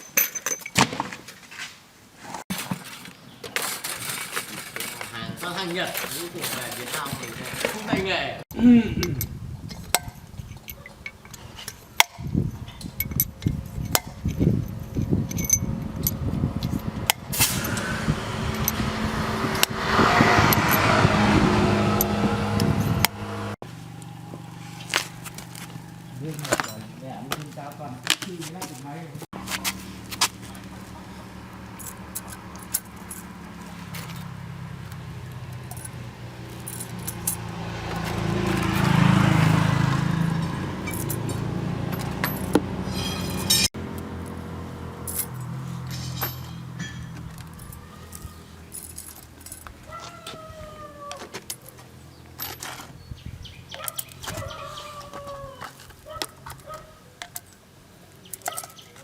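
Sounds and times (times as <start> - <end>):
light metallic clinks: 9.0 - 17.0, 35.5 - 37.5, 45.0 - 49.8
engine running: 12.8 - 27.4, 29.3 - 49.9
chickens calling: 49.8 - 52.3, 53.2 - 57.2.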